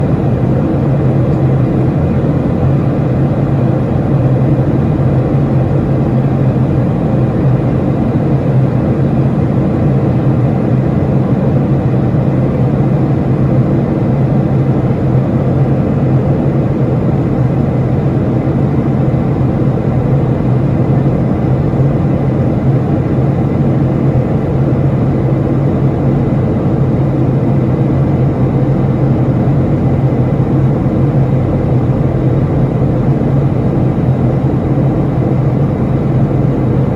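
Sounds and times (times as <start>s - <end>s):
aircraft engine drone: 0.0s - 36.9s.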